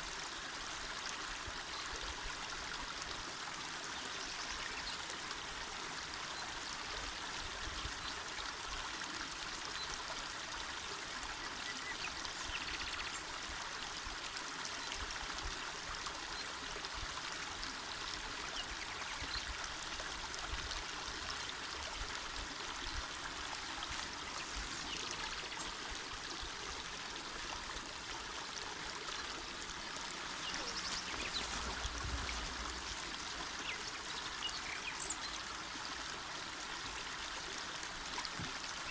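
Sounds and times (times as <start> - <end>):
river water rushing: 29.4 - 35.2.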